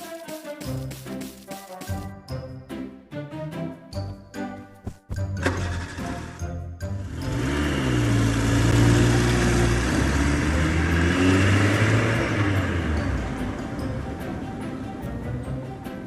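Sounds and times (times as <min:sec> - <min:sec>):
car engine revving: 0:05.4 - 0:14.3.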